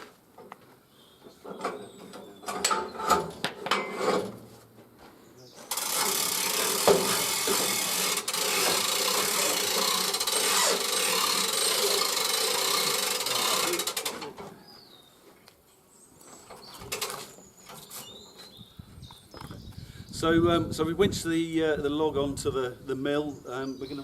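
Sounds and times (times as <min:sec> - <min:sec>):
winch clattering and ratcheting: 0:05.7 - 0:14.4.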